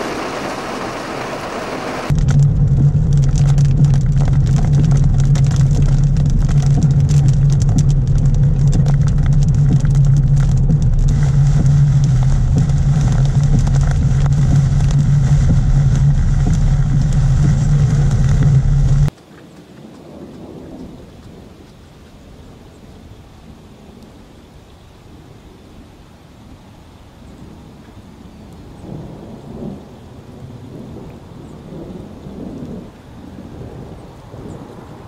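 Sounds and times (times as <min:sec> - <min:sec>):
vehicle engine humming: 0:00.0 - 0:19.1
raindrops ticking on windshield: 0:00.0 - 0:21.8.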